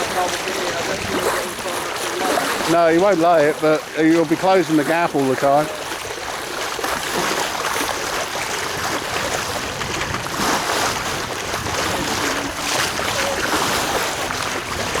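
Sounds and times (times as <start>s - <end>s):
water splashing along a hull: 0.0s - 15.0s
wind on microphone: 7.9s - 15.0s.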